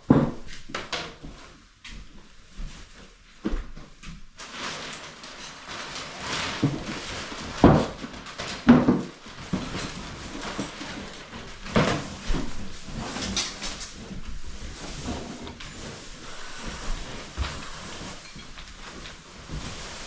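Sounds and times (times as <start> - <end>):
knocks and scraping: 8.8 - 20.0.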